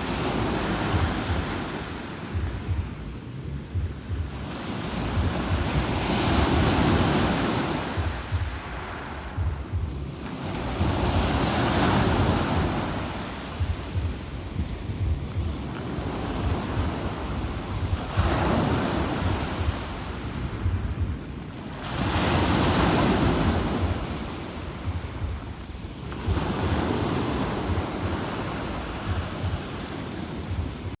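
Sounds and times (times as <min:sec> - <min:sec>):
surf washing onto shore: 0:00.0 - 0:02.9, 0:04.3 - 0:31.0
wind buffeting microphone: 0:00.0 - 0:31.0.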